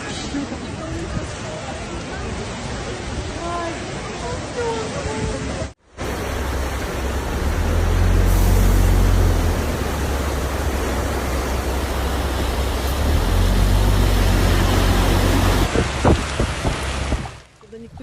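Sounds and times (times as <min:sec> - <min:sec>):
heavy rain downpour: 0:00.0 - 0:18.0
wind rumbling on microphone: 0:08.0 - 0:18.0.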